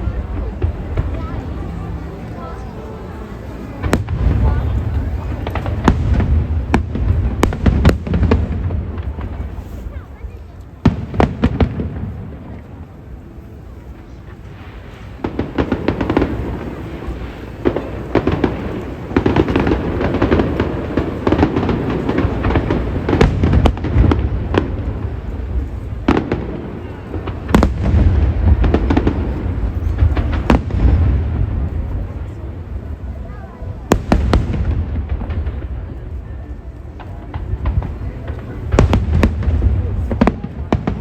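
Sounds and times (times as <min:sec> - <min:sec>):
fireworks bursts and crackling: 0:00.0 - 0:41.0
sharp firework bangs: 0:03.7 - 0:10.1, 0:10.8 - 0:12.7, 0:14.5 - 0:32.4, 0:33.8 - 0:36.0, 0:37.0 - 0:41.0.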